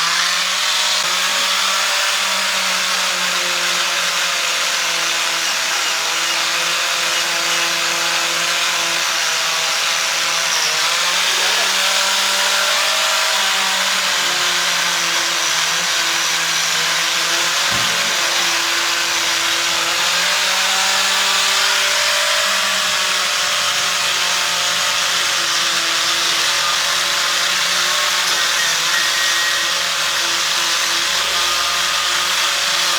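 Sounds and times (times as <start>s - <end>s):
power tool cutting wood: 0.0s - 32.9s
single knock: 17.7s - 19.0s.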